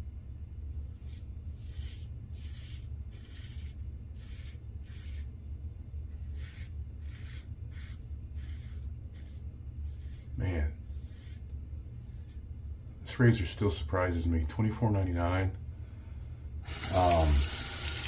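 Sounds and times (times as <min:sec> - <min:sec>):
steady low hum: 0:00.0 - 0:18.0
razor scraping stubble: 0:01.0 - 0:05.3, 0:06.3 - 0:11.4, 0:12.0 - 0:12.5.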